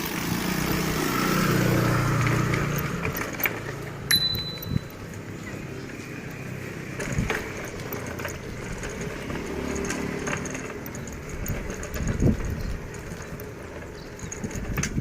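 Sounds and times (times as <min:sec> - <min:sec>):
bicycle tyres rolling on rough road: 0:00.0 - 0:15.0
bicycle jolting over bumps: 0:06.7 - 0:15.0.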